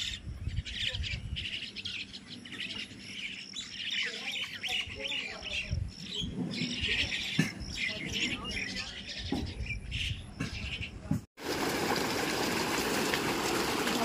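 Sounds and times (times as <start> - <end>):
flock of small birds chirping: 0.0 - 11.2.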